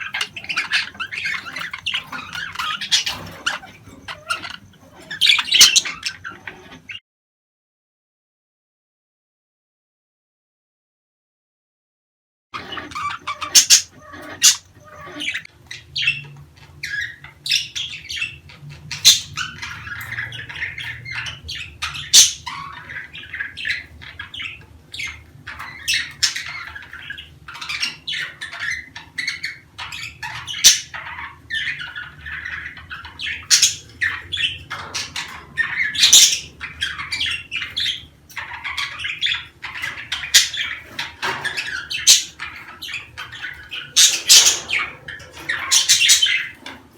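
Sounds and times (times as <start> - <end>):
budgerigar squawks: 0.0 - 6.3, 12.6 - 16.1, 18.9 - 46.6
budgerigars chattering and chirping: 0.0 - 7.0, 12.6 - 46.9.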